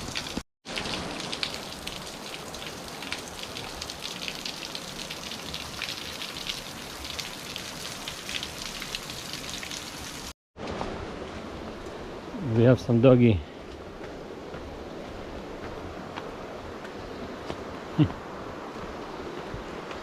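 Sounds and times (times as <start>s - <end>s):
water drops pattering on leaves: 0.0s - 10.3s.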